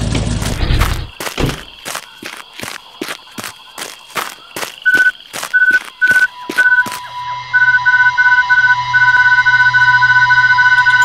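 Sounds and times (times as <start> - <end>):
regular thuds: 0.0 - 6.9
short high beeps: 4.9 - 11.0
steady electronic tone: 6.2 - 11.0.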